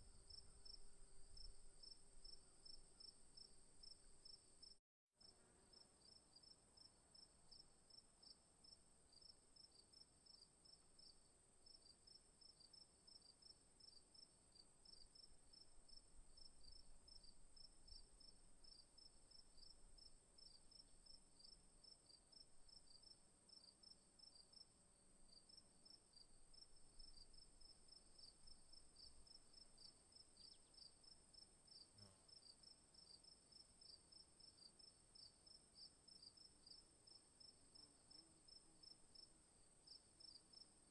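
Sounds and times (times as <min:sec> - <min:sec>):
crickets chirping: 0:00.0 - 0:04.8, 0:11.8 - 0:40.8.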